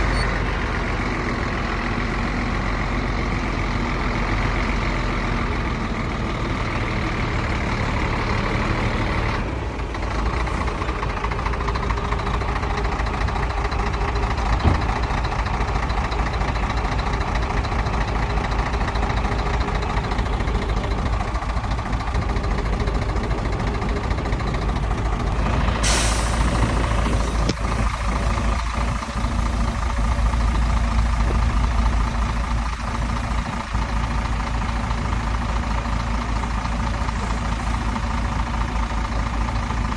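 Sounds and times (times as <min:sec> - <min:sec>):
heavy diesel machinery running: 0:00.0 - 0:39.9
air hiss: 0:25.8 - 0:30.5.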